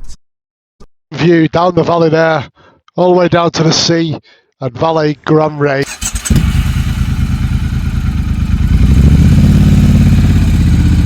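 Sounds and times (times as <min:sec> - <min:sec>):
motorcycle engine running: 0:05.8 - 0:11.0.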